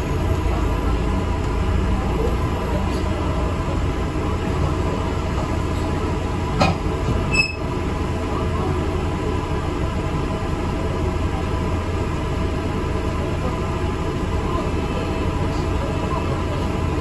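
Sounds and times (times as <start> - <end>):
bus engine and road drone: 0.0 - 17.0.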